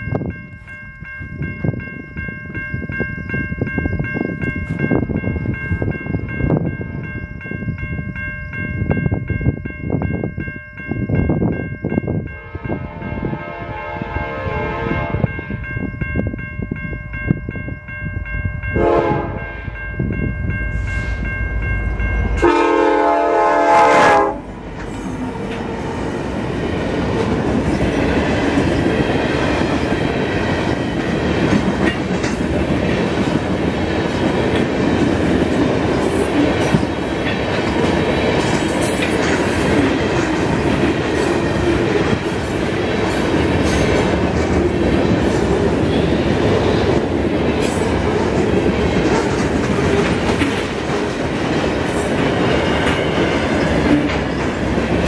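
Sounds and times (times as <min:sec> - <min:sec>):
rumble and clickety-clack of train cars: 0:00.0 - 0:55.0
freight train horn blasts: 0:12.3 - 0:15.4, 0:18.7 - 0:19.8, 0:22.1 - 0:24.6.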